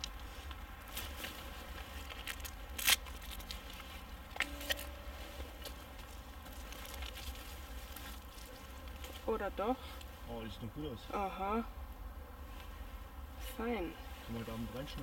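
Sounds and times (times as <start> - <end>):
twig cracking: 0.0 - 9.3
dry leaves and twigs rustling: 0.0 - 10.4.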